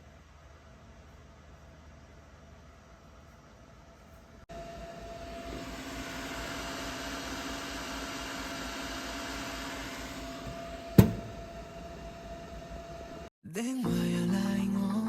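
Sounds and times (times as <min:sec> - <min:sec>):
motor-like hum: 0:04.5 - 0:13.3.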